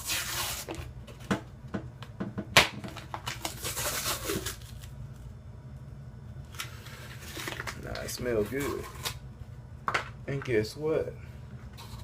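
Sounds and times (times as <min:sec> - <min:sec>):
rustling tearing noise: 0:00.0 - 0:00.8, 0:02.9 - 0:05.3, 0:06.5 - 0:09.2.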